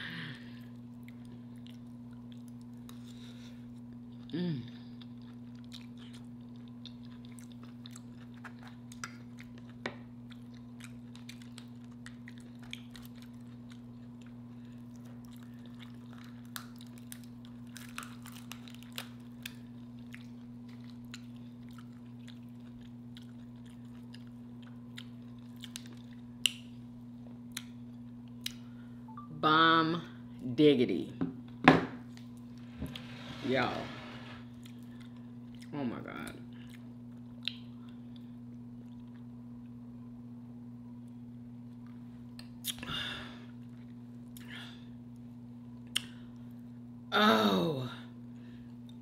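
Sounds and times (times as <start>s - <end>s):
low electrical hum: 0.0s - 49.0s
person chewing food: 0.6s - 28.7s, 36.5s - 39.8s.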